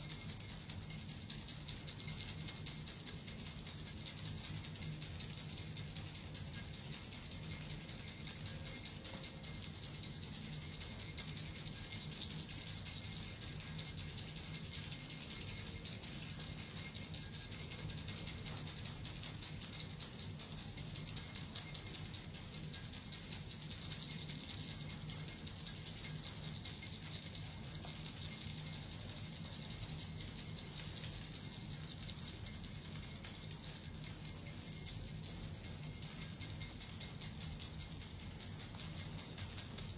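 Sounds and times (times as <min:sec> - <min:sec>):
small bells jingling: 0:00.0 - 0:39.9.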